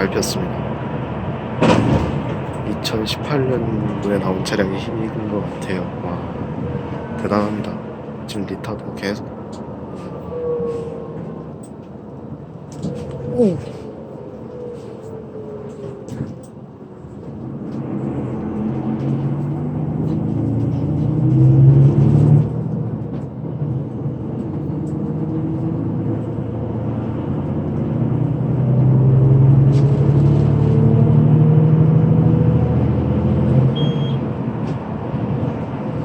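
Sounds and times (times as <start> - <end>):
bus engine accelerating: 0.0 - 36.0.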